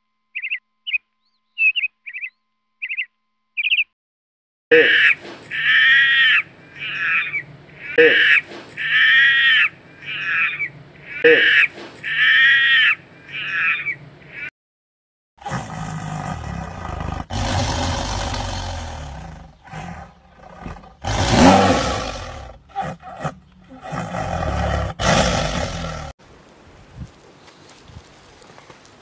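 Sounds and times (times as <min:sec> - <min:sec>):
short high calls: 0:04.7 - 0:14.5
tiger growling and roaring: 0:15.4 - 0:26.1.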